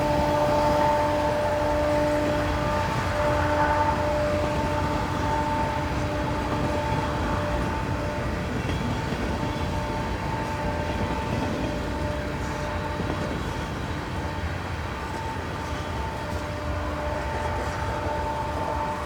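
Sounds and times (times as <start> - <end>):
train running past: 0.0 - 19.0.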